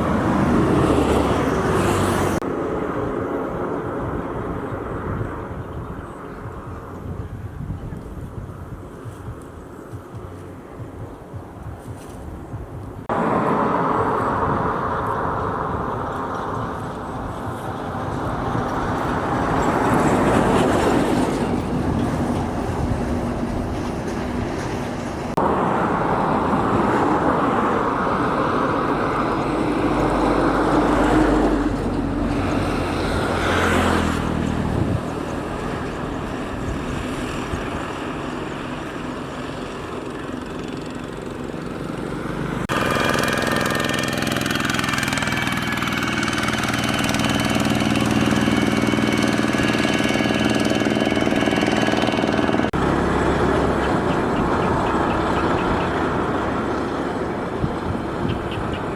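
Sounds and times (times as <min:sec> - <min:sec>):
tyre and wind rush: 0:00.0 - 0:58.9
vehicle engines: 0:00.0 - 0:58.9
steady engine tone: 0:13.0 - 0:58.9.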